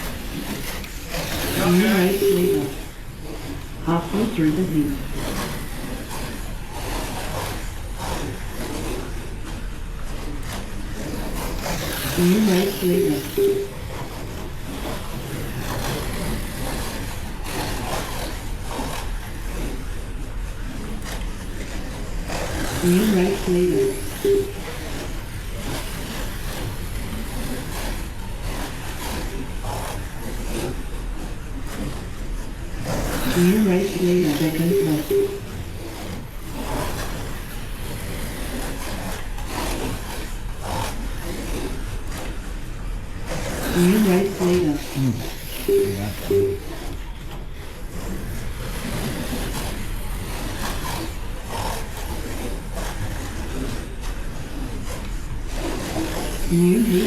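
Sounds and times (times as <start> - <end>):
slot car motors whining: 0.0 - 10.1, 10.8 - 29.0, 32.8 - 39.2, 43.4 - 47.1.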